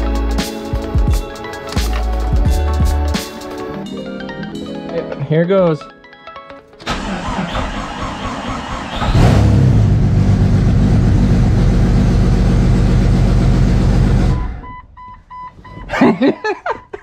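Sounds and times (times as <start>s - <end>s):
engine cranking and running: 6.8s - 14.6s.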